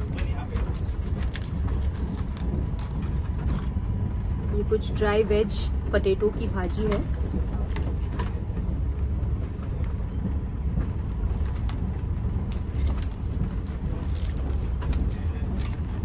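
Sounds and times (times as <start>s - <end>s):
aluminium foil crinkling: 0.0s - 3.6s, 12.4s - 16.0s
train rumbling inside coach: 0.0s - 16.0s.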